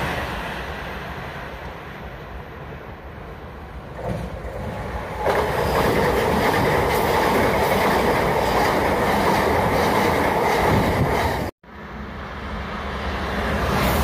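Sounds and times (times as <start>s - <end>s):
passenger train passing at speed: 0.0s - 14.0s.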